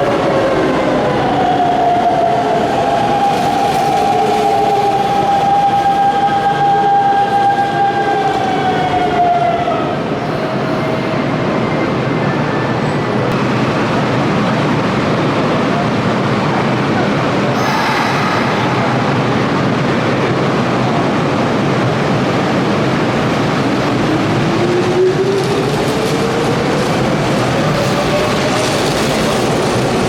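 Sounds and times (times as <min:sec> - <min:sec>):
train running rumble: 0:12.9 - 0:30.0.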